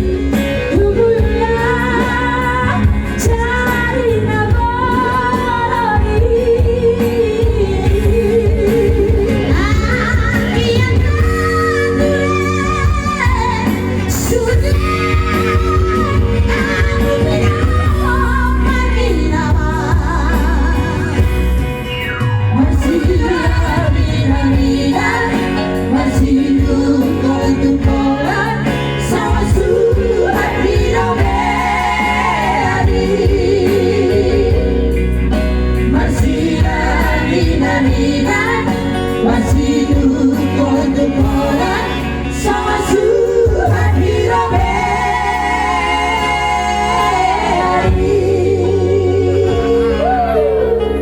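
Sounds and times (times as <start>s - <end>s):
backing music with bass line: 0.0s - 51.0s
person singing: 39.2s - 51.0s.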